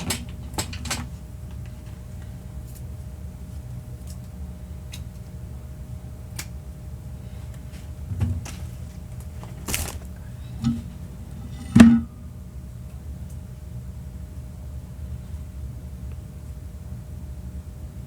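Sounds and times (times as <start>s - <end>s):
brief rustle: 9.4s - 10.2s.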